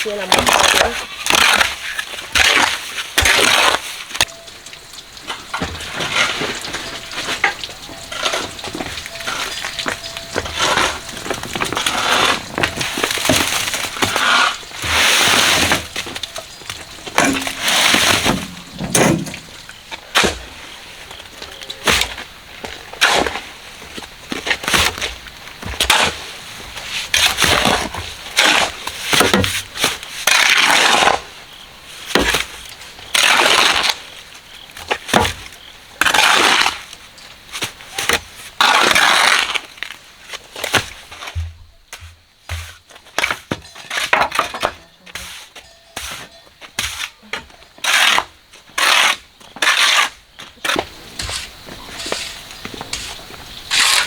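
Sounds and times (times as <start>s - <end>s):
concrete mix being shovelled: 0.0s - 4.1s, 5.6s - 16.4s, 17.0s - 21.0s, 42.5s - 47.1s, 47.8s - 54.0s.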